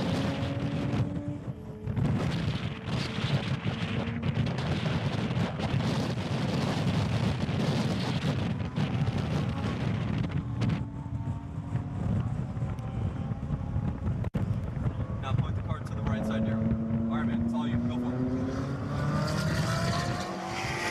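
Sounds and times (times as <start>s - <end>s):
car engine running hard: 0.0s - 20.9s
wind buffeting microphone: 0.0s - 20.9s.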